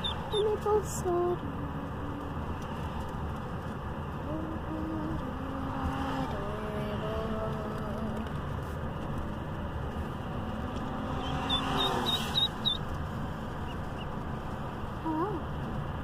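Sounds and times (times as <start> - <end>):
ducklings peeping: 0.0 - 0.6, 11.2 - 12.9
car road noise: 0.0 - 16.0.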